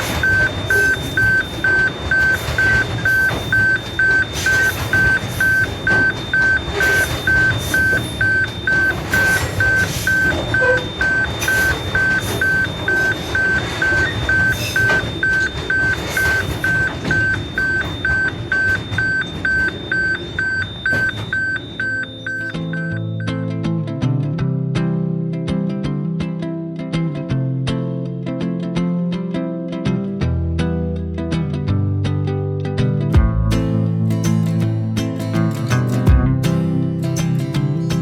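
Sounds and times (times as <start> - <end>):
level crossing alarm beeping: 0.0 - 23.4.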